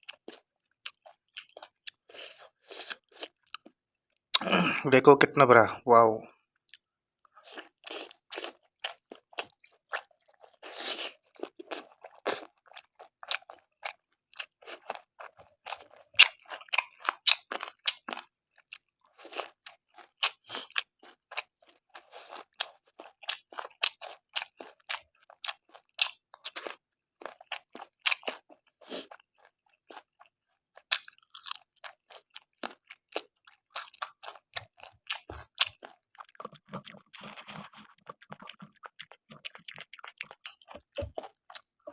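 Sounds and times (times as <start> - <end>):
chewing and crunching food: 0.0 - 4.8, 6.3 - 41.9
wet mouth clicks: 36.2 - 41.3.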